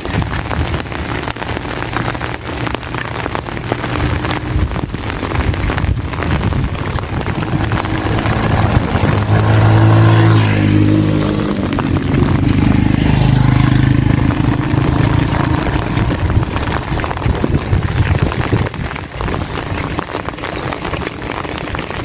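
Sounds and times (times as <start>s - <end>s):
rain hiss: 0.0s - 22.0s
vehicle engine passing by: 6.8s - 17.7s.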